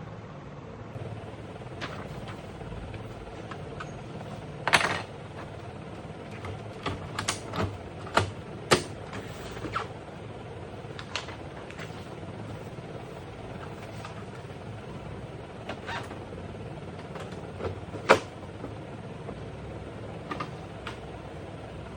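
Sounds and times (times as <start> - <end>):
steady low hum: 0.0 - 21.9
sharp clicks and knocks: 1.7 - 9.9, 17.0 - 19.4, 20.2 - 21.2.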